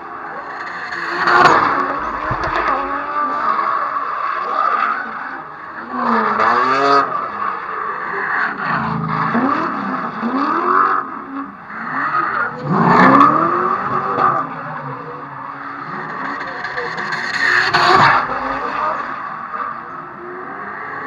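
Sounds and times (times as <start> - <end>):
car engine revving: 0.0 - 4.4, 8.3 - 21.0
tyres screeching: 0.3 - 3.4, 15.7 - 19.4.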